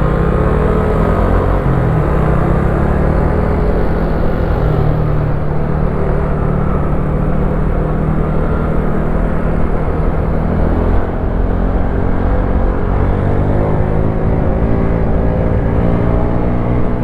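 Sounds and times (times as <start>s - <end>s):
motorcycle engine running: 0.0s - 17.0s
riding wind noise: 0.0s - 17.0s.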